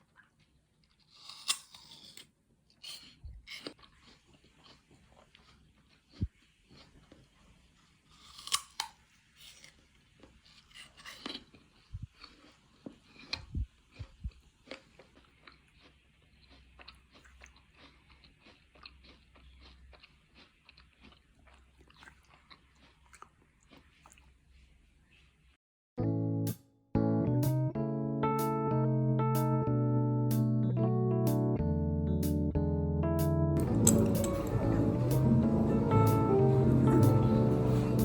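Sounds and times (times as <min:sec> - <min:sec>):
chewing and crunching food: 0:00.0 - 0:25.4, 0:33.6 - 0:38.0.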